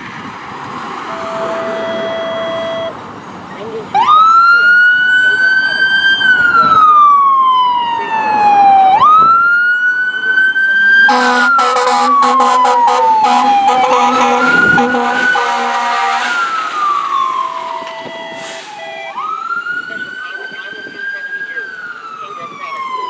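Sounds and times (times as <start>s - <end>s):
air horn blasts: 1.0s - 3.0s, 11.0s - 16.7s
electronic siren wailing: 1.1s - 3.0s, 10.6s - 21.0s.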